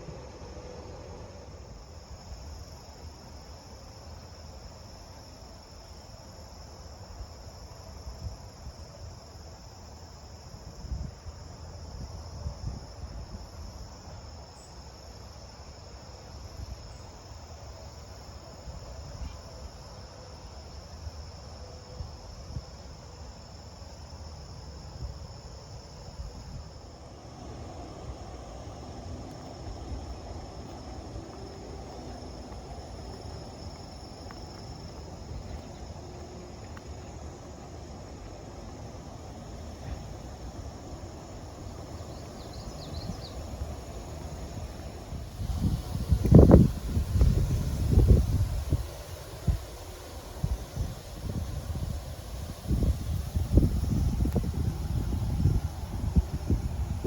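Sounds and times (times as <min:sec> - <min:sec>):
insect drone: 0:00.0 - 0:57.0
wind buffeting microphone: 0:38.8 - 0:57.0.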